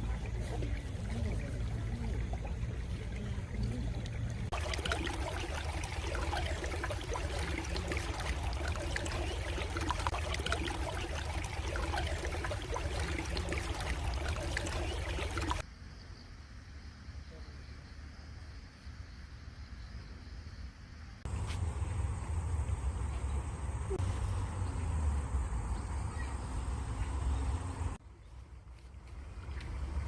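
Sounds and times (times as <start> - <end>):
stream water flowing: 0.0 - 15.6.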